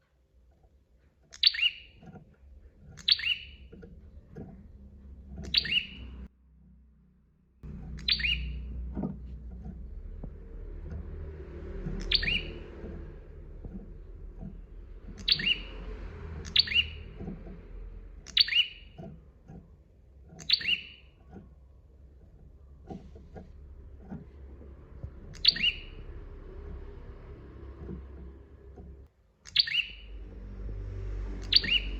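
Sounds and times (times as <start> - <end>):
low background hum: 0.0 - 31.9
bird chirping sharply: 1.3 - 2.0, 3.0 - 3.7, 5.4 - 6.3, 7.8 - 8.8, 11.8 - 13.8, 14.4 - 17.4, 18.2 - 19.0, 20.4 - 21.1, 25.2 - 27.7, 29.4 - 30.4, 31.3 - 31.9.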